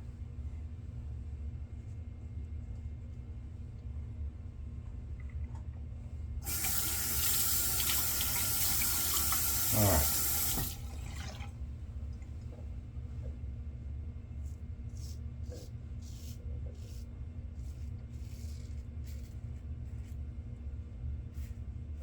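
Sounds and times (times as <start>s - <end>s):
water running from tap into sink: 6.4s - 11.5s
drain gurgle: 6.5s - 11.6s.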